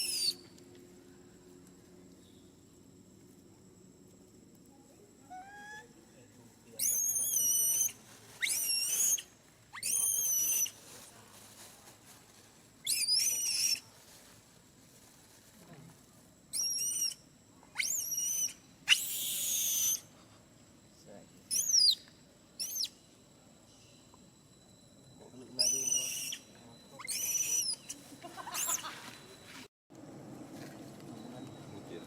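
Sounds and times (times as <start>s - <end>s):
baby monkey squealing: 0.0s - 0.4s, 6.8s - 10.8s, 12.8s - 13.8s, 16.5s - 17.2s, 17.8s - 20.1s, 21.5s - 22.0s, 22.6s - 23.0s, 25.6s - 28.9s.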